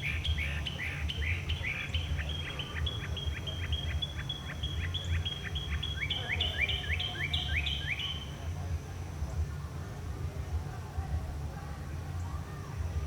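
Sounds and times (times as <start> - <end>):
mockingbird singing: 0.0 - 8.5.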